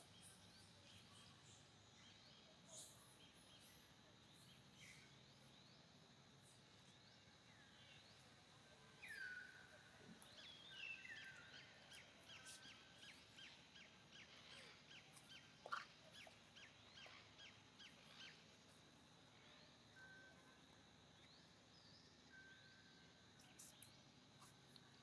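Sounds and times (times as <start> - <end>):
short bird chirps: 14.5 - 16.4.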